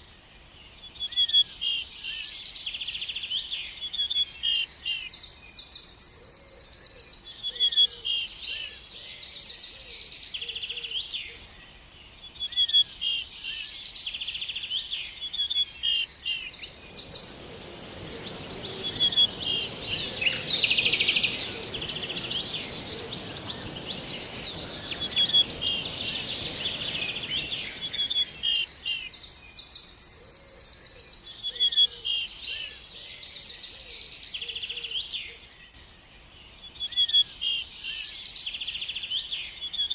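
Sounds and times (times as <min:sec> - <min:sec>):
steady high-pitched hiss: 0:16.2 - 0:29.8
birds chirping and singing: 0:16.4 - 0:29.1
broad rushing noise: 0:16.5 - 0:28.8.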